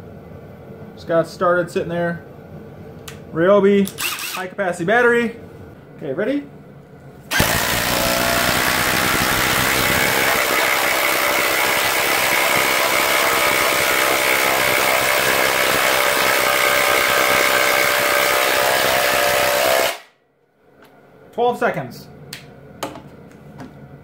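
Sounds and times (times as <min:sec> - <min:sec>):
impact driver hammering: 0:07.3 - 0:20.1.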